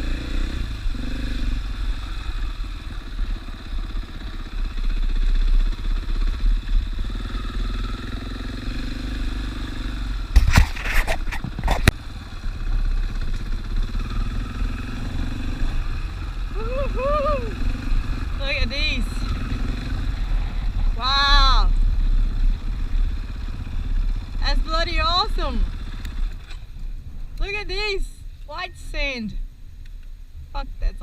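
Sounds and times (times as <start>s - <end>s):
dirt bike engine revving: 0.0s - 26.7s
sharp knocks and rattles: 10.3s - 12.0s.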